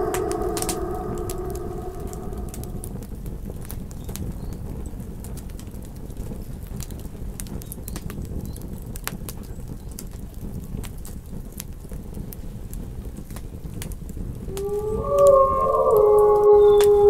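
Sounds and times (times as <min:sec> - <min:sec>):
low rumble of burning wood: 0:00.0 - 0:03.4, 0:04.4 - 0:17.0
campfire crackling and popping: 0:05.4 - 0:15.2.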